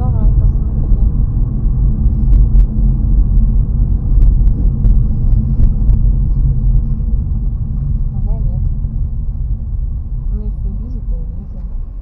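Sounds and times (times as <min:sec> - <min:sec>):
road and engine rumble: 0:00.0 - 0:12.0
sharp ticks: 0:02.1 - 0:06.2.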